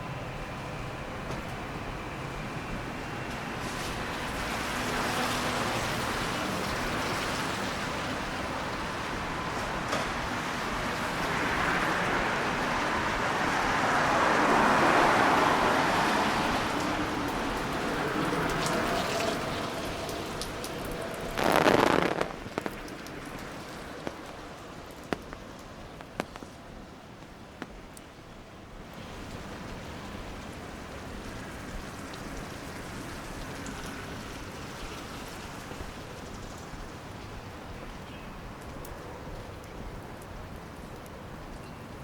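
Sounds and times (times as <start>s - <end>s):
tyres hissing on wet road: 0.0s - 42.0s
water dripping: 12.6s - 28.1s, 28.9s - 42.0s.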